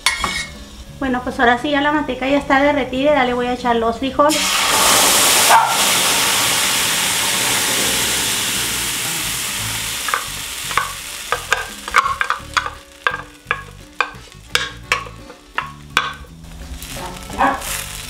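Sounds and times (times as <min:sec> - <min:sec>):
beans sizzling in hot fat: 0:04.3 - 0:18.0.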